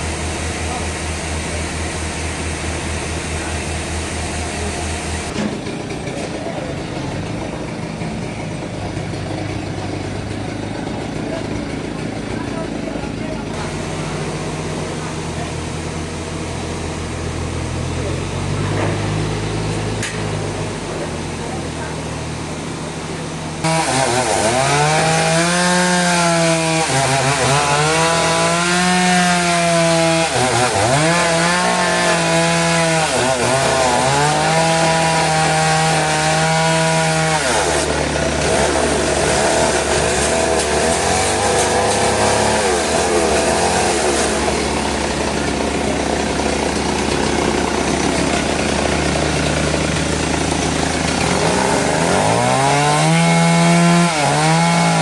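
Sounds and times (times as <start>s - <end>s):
powered saw cutting log: 0.0s - 55.0s.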